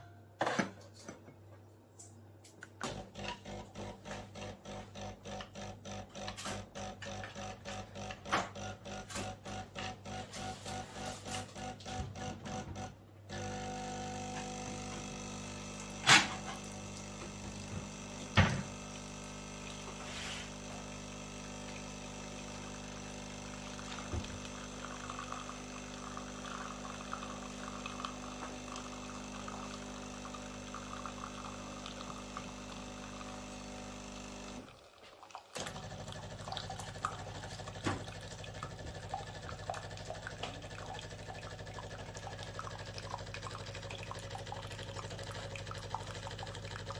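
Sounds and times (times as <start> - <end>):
espresso machine pump running: 2.8 - 34.8, 35.6 - 46.9
liquid trickling and pouring: 34.7 - 46.9.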